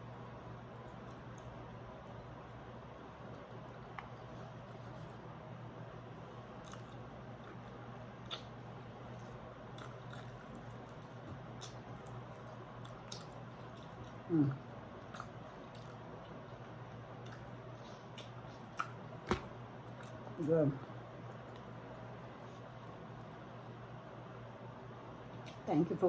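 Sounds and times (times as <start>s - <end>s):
soft chewing clicks: 0.7s - 2.6s, 6.5s - 19.1s, 21.2s - 22.7s
person humming: 14.3s - 14.6s.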